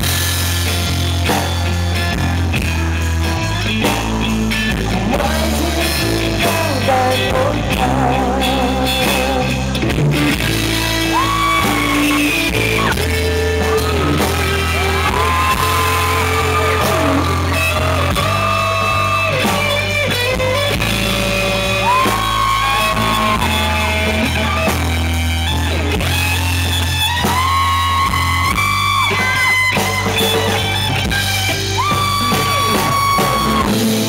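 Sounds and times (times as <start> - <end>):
bass: 0.0 - 34.0
rock band playing: 0.0 - 34.0
lead guitar sliding notes: 9.7 - 34.0.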